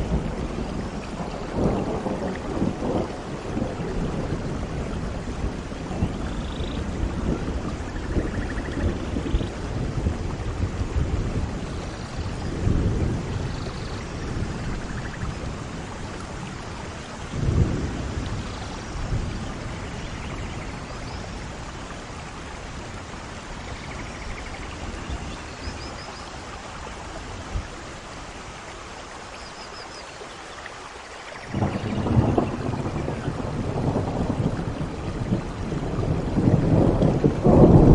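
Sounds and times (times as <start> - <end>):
low rolls of thunder: 0.0 - 26.1, 31.4 - 37.9
steady rain: 0.0 - 37.9.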